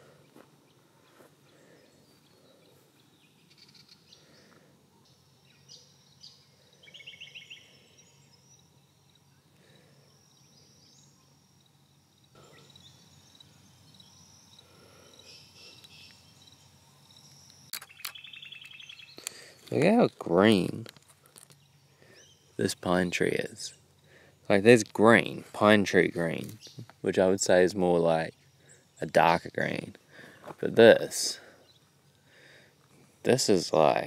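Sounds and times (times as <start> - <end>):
bird chirps and calls: 1.0 - 11.4, 12.4 - 19.6, 21.6 - 24.6, 26.2 - 26.9
bird trill: 1.0 - 19.6, 21.5 - 24.6.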